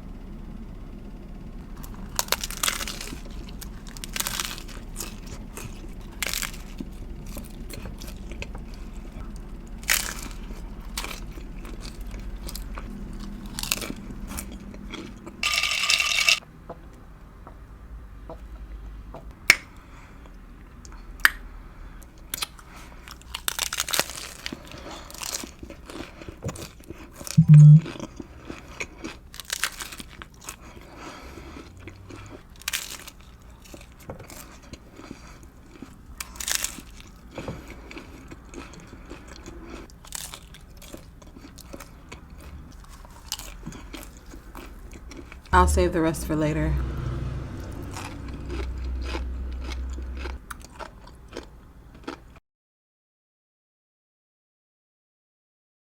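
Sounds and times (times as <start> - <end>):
crunching taco shells: 1.8 - 16.4, 20.8 - 45.5, 47.4 - 52.4
loud low hum: 27.4 - 27.9, 45.6 - 50.5.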